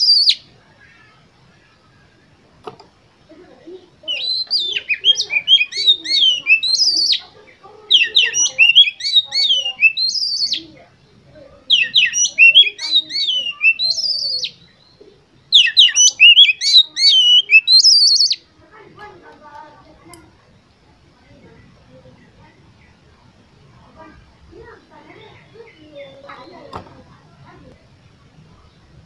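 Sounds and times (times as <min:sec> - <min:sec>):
bird singing whistled notes: 0:00.0 - 0:00.9, 0:04.0 - 0:07.3, 0:07.9 - 0:10.7, 0:11.7 - 0:18.5.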